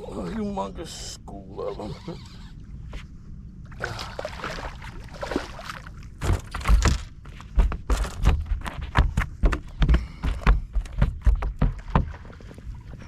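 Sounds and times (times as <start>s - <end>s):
water splashing: 3.7s - 6.2s
thumps in a boat: 6.2s - 13.0s.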